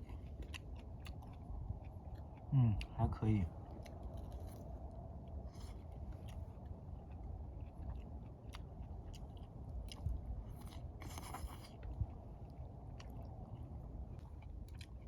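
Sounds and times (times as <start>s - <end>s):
person chewing: 0.0s - 2.9s, 3.6s - 15.0s.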